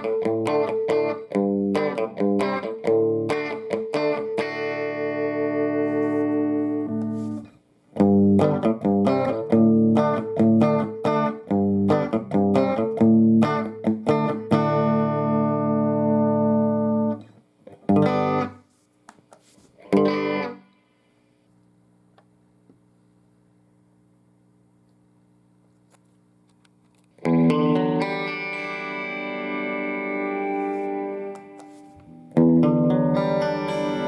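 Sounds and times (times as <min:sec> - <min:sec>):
electric guitar picked notes and chords: 0:00.0 - 0:18.6, 0:19.8 - 0:20.7, 0:27.2 - 0:34.0.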